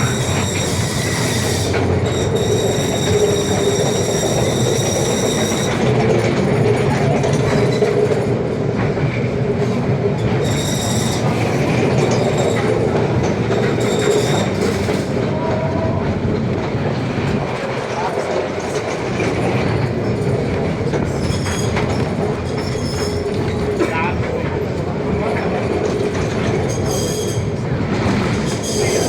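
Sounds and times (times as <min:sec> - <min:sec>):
high-pitched wheel squeals: 0:00.0 - 0:05.9, 0:10.4 - 0:12.8, 0:13.5 - 0:16.0, 0:26.6 - 0:27.6
rumble of wheels on track: 0:00.0 - 0:29.0.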